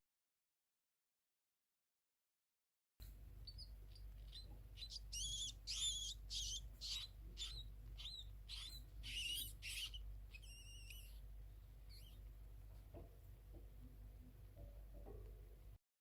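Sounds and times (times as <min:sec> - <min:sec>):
small animal squeaking: 0:03.4 - 0:12.3.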